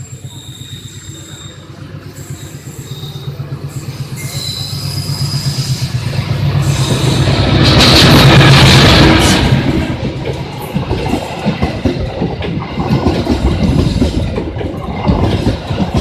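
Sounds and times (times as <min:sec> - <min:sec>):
high-pitched wheel squeal: 0:00.0 - 0:05.9
train rumbling: 0:00.0 - 0:16.0.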